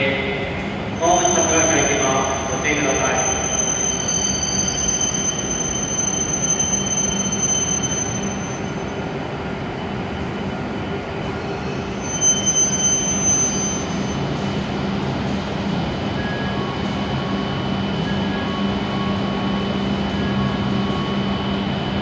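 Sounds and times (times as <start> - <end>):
train rumbling: 0.0 - 22.0
high brake squeal: 1.0 - 9.1, 11.4 - 14.4.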